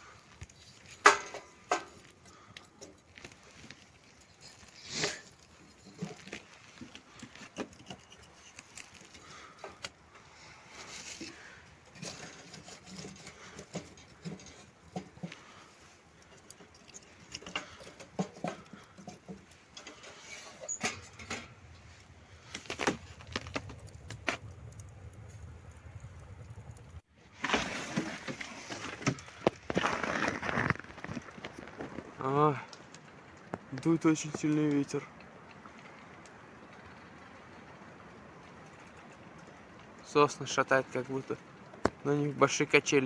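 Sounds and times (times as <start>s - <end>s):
objects being handled: 0.0s - 24.8s, 27.2s - 35.0s
low rumble: 21.6s - 27.0s.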